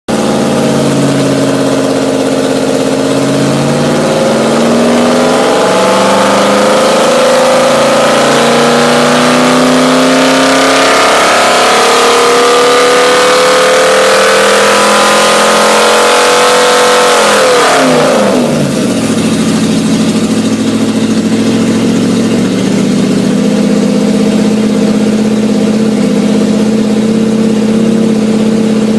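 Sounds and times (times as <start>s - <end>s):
car engine revving on dynamometer: 0.1s - 28.9s.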